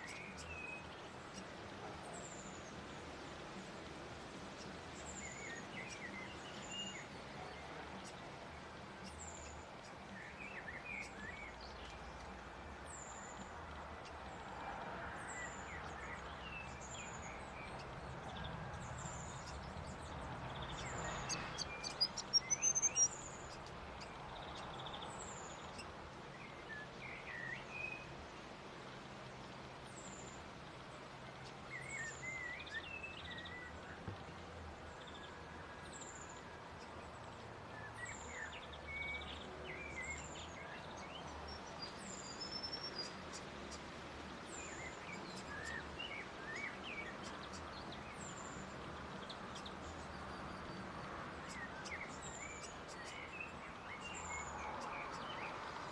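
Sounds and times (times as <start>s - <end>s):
steady background hiss: 0.0s - 55.9s
squeaky bird twittering: 21.6s - 23.2s.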